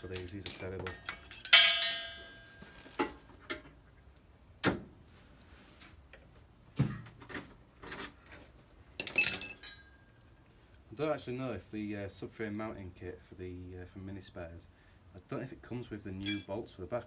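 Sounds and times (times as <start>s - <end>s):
metal tools and bolts knocking: 0.0s - 3.6s, 9.0s - 10.0s, 16.2s - 16.7s
ringing metallic clink: 0.5s - 2.8s, 9.0s - 10.2s, 16.2s - 16.7s.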